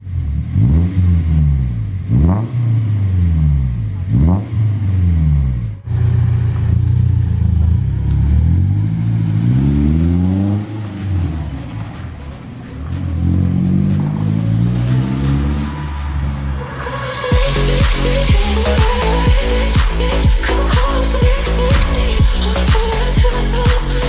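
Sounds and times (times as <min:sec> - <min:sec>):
deep bass exhaust note: 0:00.1 - 0:11.3, 0:17.3 - 0:24.0
pickup engine revving: 0:00.1 - 0:24.0.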